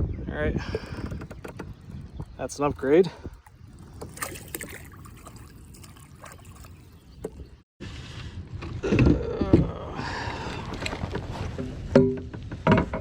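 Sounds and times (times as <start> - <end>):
water trickling and splashing: 0.7 - 7.6.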